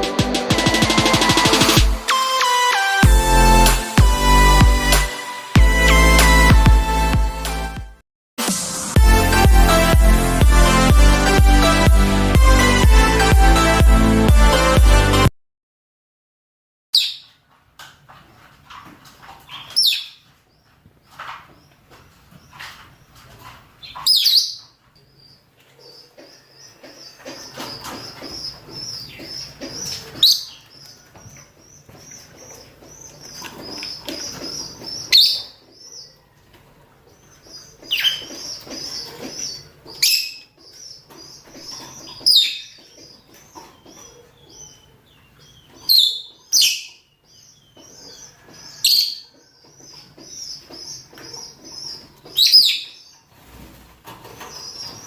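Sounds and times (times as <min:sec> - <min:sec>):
birds twittering chatter: 0:19.4 - 0:55.0.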